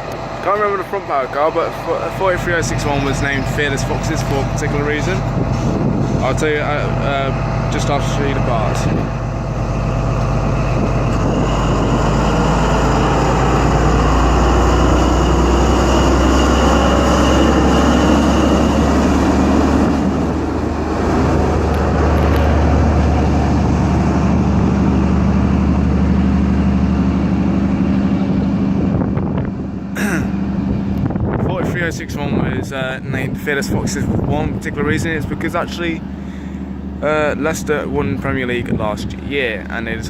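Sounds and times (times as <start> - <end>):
diesel locomotive engine drone: 0.0 - 40.0
wheel and rail noise: 0.0 - 40.0.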